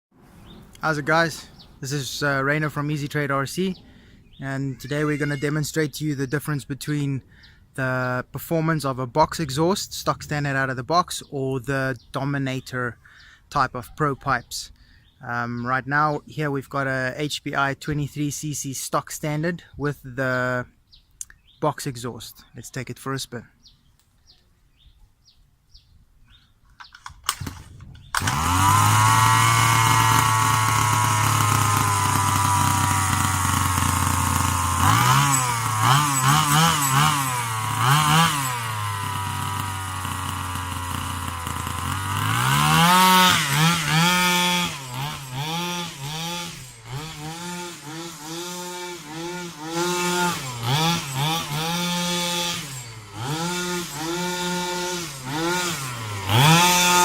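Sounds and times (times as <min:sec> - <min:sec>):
two-stroke engine idling and revving: 0:27.3 - 0:57.0.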